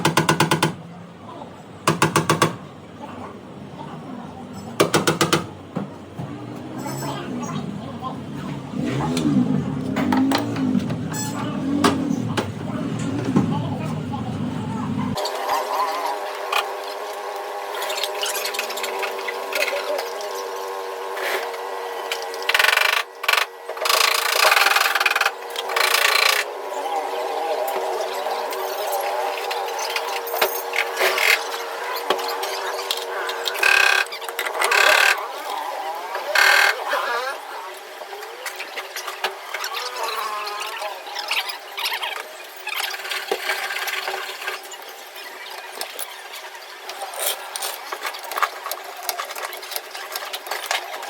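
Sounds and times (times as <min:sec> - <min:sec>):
hammer tapping metal panel: 0:00.0 - 0:00.8, 0:01.9 - 0:02.6
steady background hum: 0:00.0 - 0:51.0.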